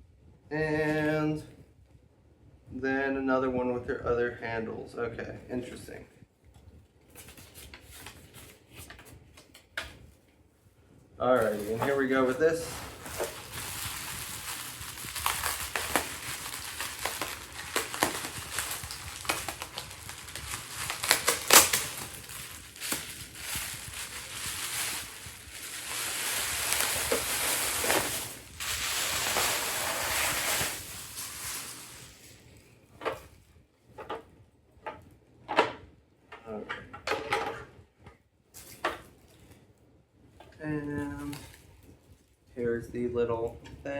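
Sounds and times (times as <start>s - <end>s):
packaging wrap crinkling: 11.3s - 32.6s
sharp snaps of wrap: 13.0s - 29.6s.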